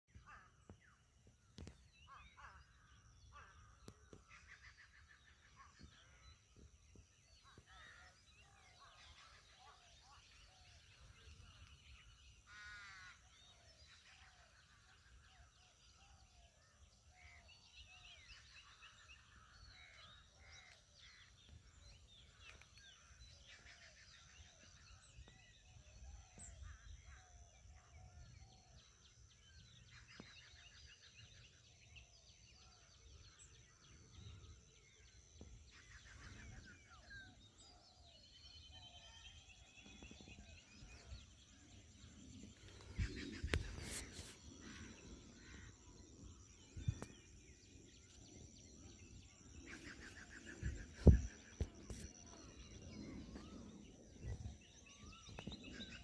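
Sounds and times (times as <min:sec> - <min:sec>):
birds calling: 0:29.6 - 0:56.0.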